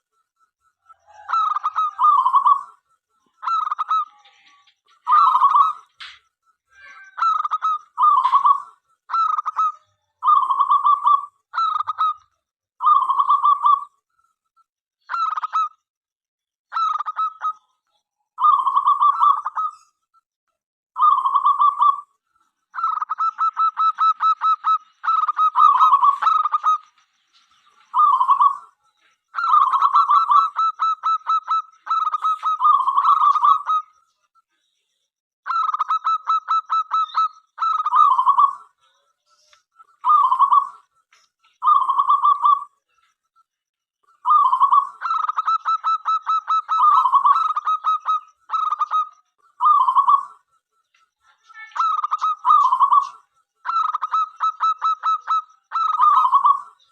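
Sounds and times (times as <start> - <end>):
dove cooing: 0.8 - 2.8, 3.4 - 6.2, 7.1 - 12.2, 21.0 - 22.1, 22.8 - 26.9, 27.9 - 28.7, 29.4 - 33.9, 40.0 - 40.8, 41.6 - 42.8, 44.2 - 50.4, 51.8 - 56.9.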